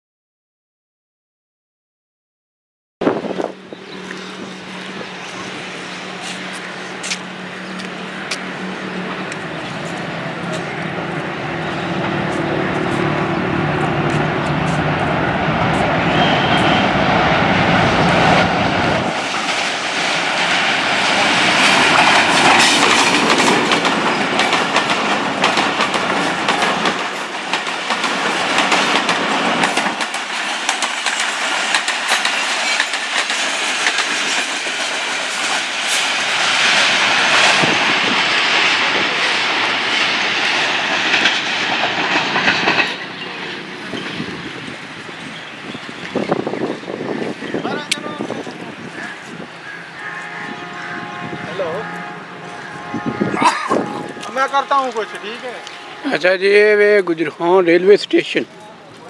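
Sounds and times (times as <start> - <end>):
diesel locomotive passing: 3.0 - 59.0
train wheels clickety-clack: 6.2 - 16.8, 18.3 - 44.9.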